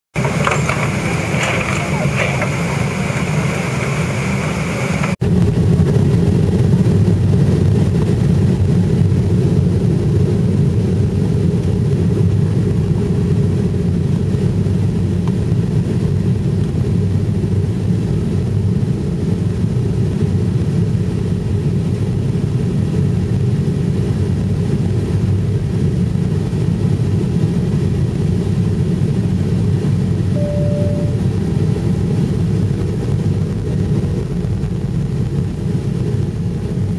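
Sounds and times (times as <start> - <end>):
jet engine rumble in cabin: 0.2 - 36.9
short single tone: 30.4 - 31.4.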